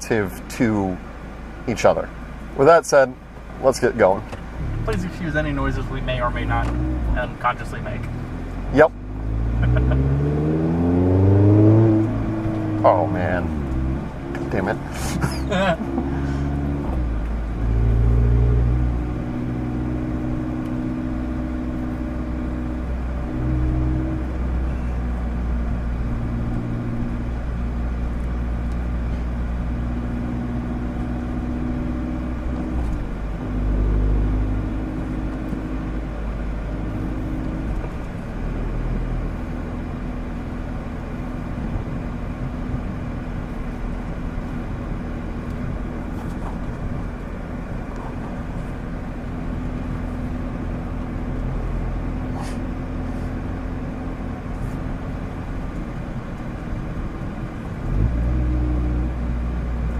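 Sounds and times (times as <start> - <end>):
car engine running: 0.0 - 59.9.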